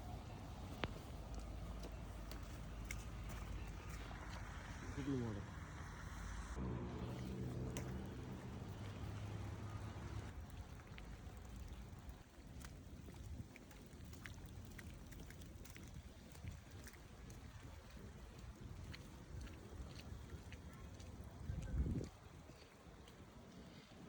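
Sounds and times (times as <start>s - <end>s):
raindrops ticking: 0.0s - 4.8s, 7.1s - 21.1s
low engine hum: 0.0s - 12.4s
traffic rumble: 0.0s - 24.0s.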